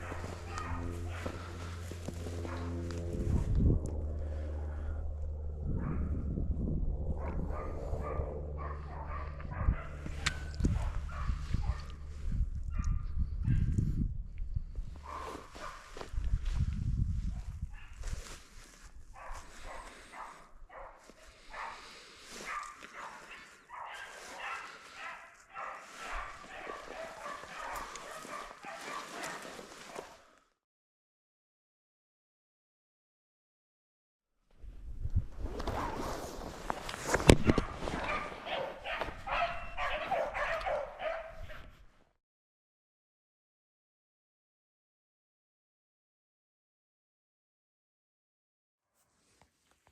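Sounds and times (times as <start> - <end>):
hounds baying: 0.0 - 2.8, 7.2 - 12.1, 15.0 - 16.0, 19.2 - 30.2, 37.4 - 41.7.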